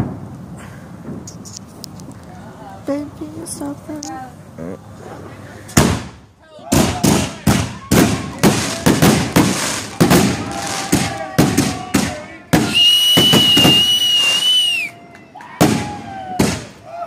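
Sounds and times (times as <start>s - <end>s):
fireworks bangs: 0.0s - 1.8s, 5.7s - 14.9s, 15.5s - 16.8s
shrill firework whistle: 12.6s - 15.0s.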